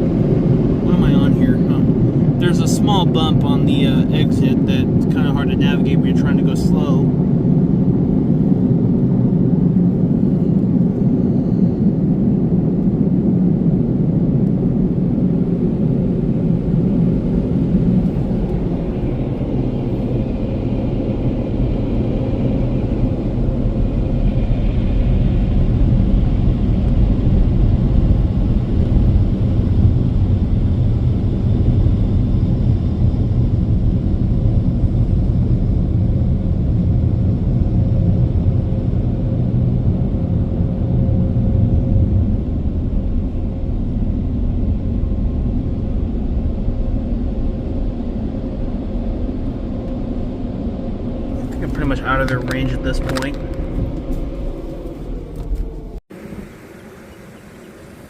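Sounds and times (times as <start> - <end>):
car wash air dryers blowing: 51.2 - 58.0.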